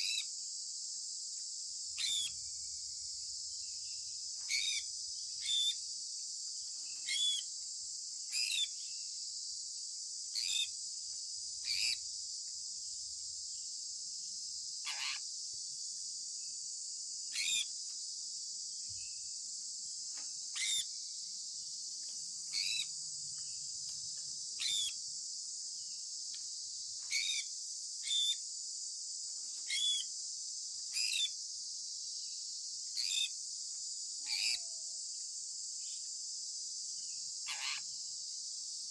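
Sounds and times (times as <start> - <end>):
high-pitched background hiss: 0.0 - 38.9
parrot chirping: 7.1 - 7.4, 22.5 - 22.9, 24.6 - 24.9.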